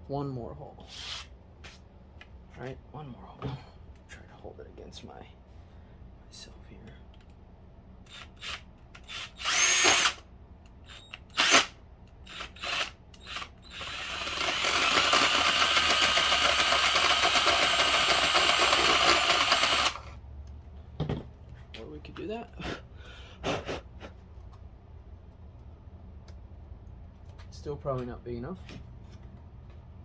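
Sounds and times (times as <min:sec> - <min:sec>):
power drill boring through plastic: 0:08.1 - 0:10.2, 0:10.9 - 0:20.1.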